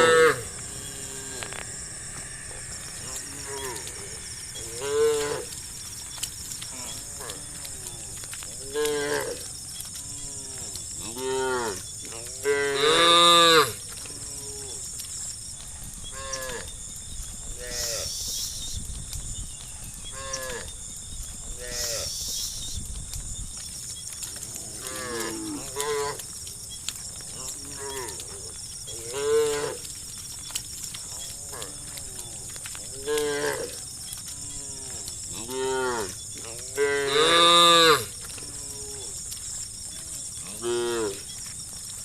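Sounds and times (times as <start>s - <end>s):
cattle mooing: 0.0s - 5.6s.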